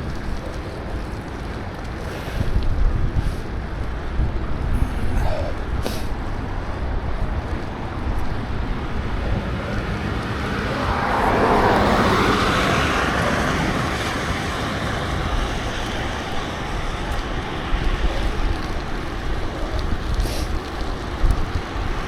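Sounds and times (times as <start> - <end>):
wind rumbling on microphone: 0.0 - 22.0
rushing noise: 4.6 - 22.0.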